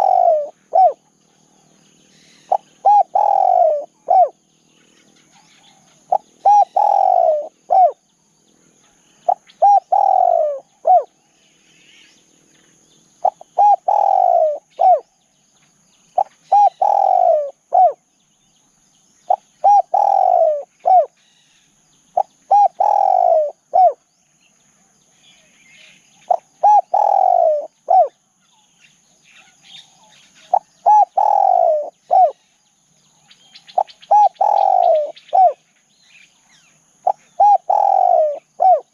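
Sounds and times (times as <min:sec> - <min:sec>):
dove cooing: 0:00.0 - 0:01.2, 0:02.0 - 0:04.4, 0:05.0 - 0:08.0, 0:08.9 - 0:11.2, 0:13.2 - 0:15.1, 0:16.2 - 0:18.0, 0:19.3 - 0:21.2, 0:22.2 - 0:24.1, 0:26.2 - 0:28.2, 0:29.4 - 0:32.5, 0:33.7 - 0:35.7, 0:37.0 - 0:38.9
faint bird chirps: 0:00.0 - 0:38.9.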